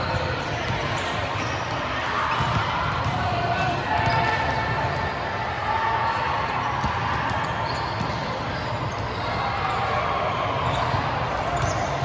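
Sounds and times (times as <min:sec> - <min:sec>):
balls hit and bouncing: 0:00.6 - 0:05.2.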